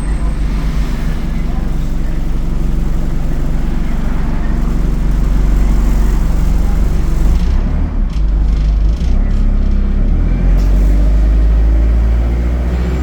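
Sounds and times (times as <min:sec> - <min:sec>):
bus diesel engine drone: 0:00.0 - 0:13.0.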